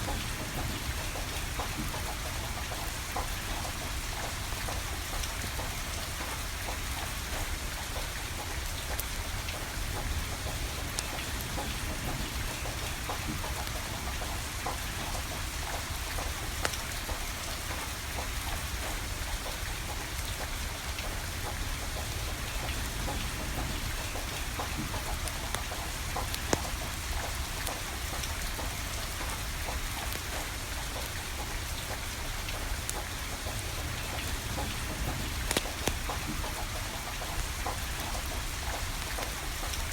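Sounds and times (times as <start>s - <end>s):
steady rain falling: 0.0s - 39.9s
wood fire crackling: 21.8s - 39.9s.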